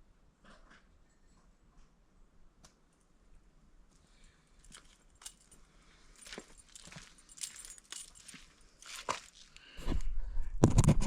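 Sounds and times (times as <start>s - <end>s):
metal tool clinking and rattling: 4.6s - 9.6s.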